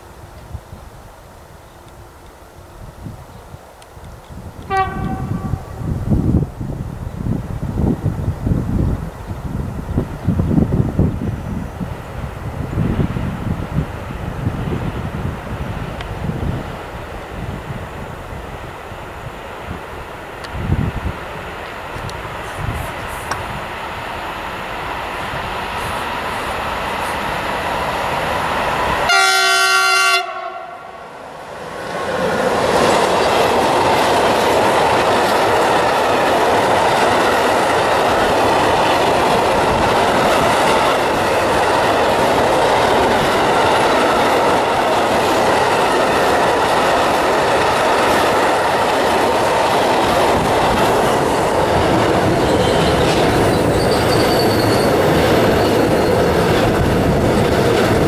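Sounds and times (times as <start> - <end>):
train wheels on rails: 0.0 - 58.0
locomotive horn: 4.7 - 5.8, 29.0 - 31.0.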